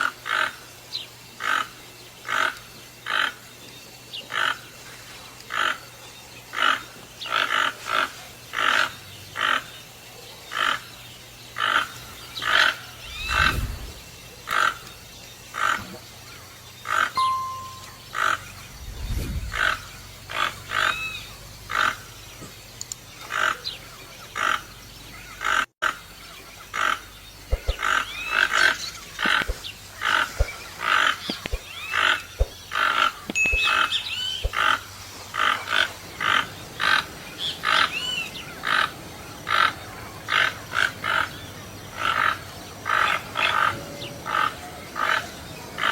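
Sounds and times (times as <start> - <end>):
toucan calling: 11.6 - 18.8, 23.3 - 37.0.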